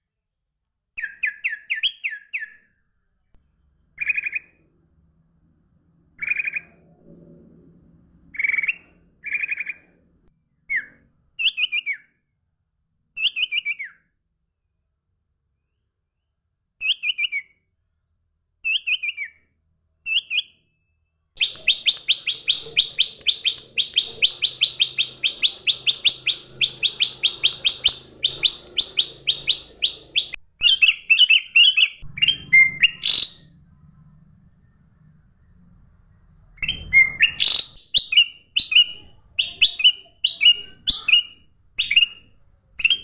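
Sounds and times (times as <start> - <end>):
songbird chirping: 3.6 - 4.7, 6.2 - 6.9, 8.4 - 10.0, 10.7 - 12.2, 13.2 - 14.0, 16.8 - 17.6, 18.6 - 19.5, 20.1 - 43.0.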